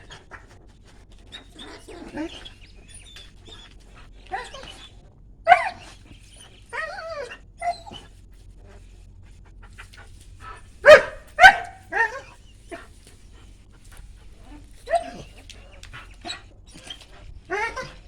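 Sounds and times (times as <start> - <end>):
dog whining: 0.0 - 8.8, 9.7 - 13.5, 14.4 - 18.0
dog barking: 5.4 - 6.0, 10.4 - 12.9, 14.4 - 15.6.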